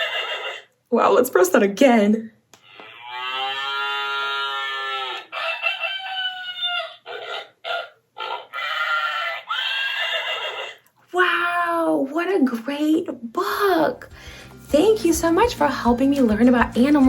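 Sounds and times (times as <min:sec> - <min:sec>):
recorded farm animal calls: 0:00.0 - 0:00.7, 0:02.6 - 0:10.9
rooster crowing: 0:02.8 - 0:10.8
hen clucks: 0:04.5 - 0:10.8.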